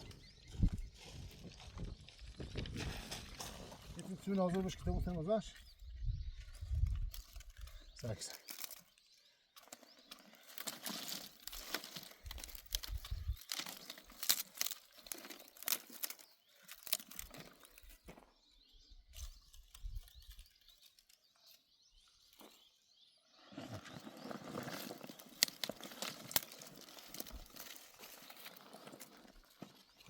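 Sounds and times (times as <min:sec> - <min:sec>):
rustling and crackling: 0:09.6 - 0:18.1, 0:23.5 - 0:30.0.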